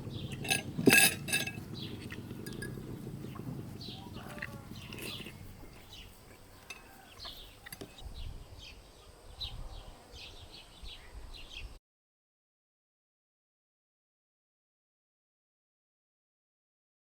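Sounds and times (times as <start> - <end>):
low rumble: 0.0 - 6.1
small birds chirping: 0.0 - 11.8
light clinks: 0.2 - 3.5, 6.6 - 8.0.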